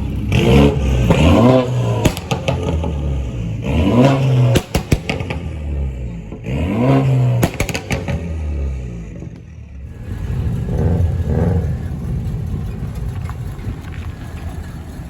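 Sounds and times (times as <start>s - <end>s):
car engine revving: 0.0s - 15.0s
exhaust pops and crackles: 0.0s - 15.0s.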